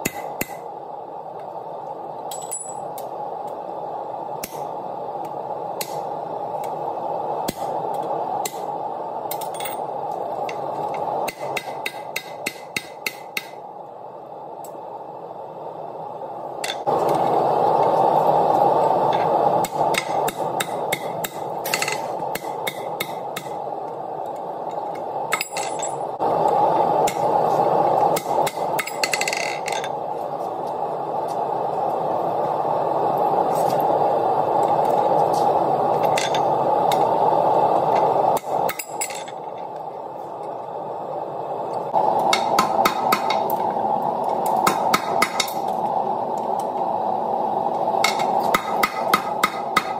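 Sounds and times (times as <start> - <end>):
steady rushing noise: 0.0 - 49.9
hammer on steel: 48.0 - 49.9.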